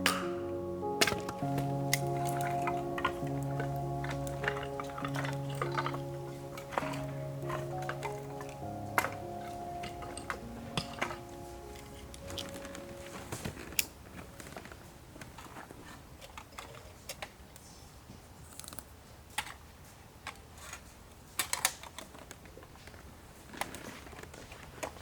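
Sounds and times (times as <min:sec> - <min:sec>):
clicks of objects being handled: 0:00.0 - 0:15.4.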